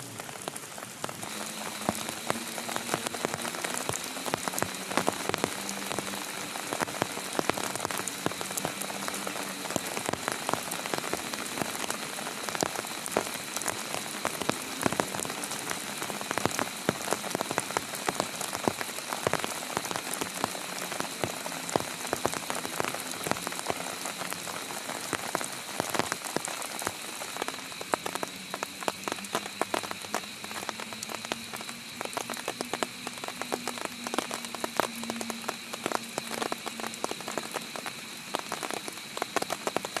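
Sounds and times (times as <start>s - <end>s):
heavy rain falling: 0.0s - 40.0s
raindrops hitting a surface: 0.0s - 40.0s.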